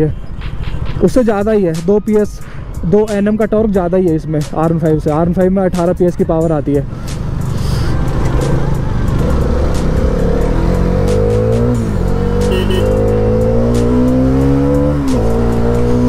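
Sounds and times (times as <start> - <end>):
motorcycle engine accelerating: 7.1 - 16.0.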